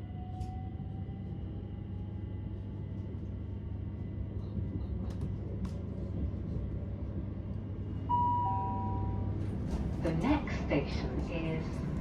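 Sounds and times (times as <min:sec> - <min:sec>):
train running inside carriage: 0:00.0 - 0:12.0
two-tone public-address chime: 0:08.1 - 0:09.3.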